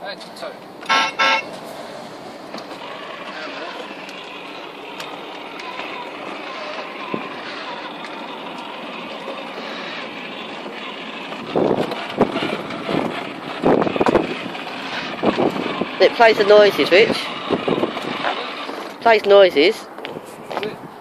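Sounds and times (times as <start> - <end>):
toy speaker noise bursts: 0.9 - 1.5
toy speaker rushing noise: 5.4 - 19.2.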